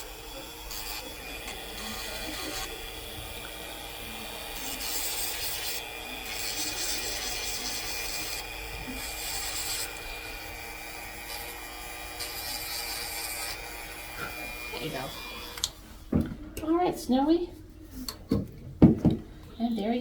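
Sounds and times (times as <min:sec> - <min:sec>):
abrasive rasping on parrot beak: 0:04.4 - 0:14.8.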